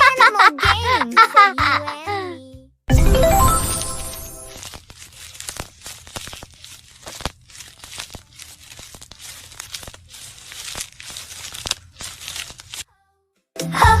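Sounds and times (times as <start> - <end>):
plastic bags crinkling: 3.3 - 12.9.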